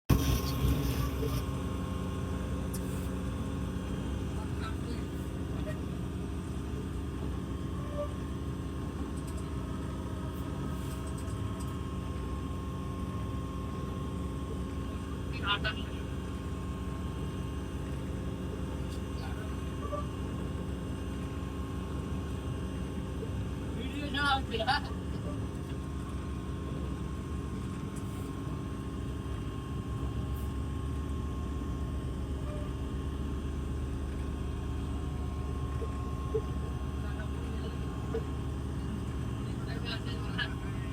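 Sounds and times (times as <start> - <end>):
train rumbling: 0.1 - 12.3
faint steady whine: 0.1 - 40.9.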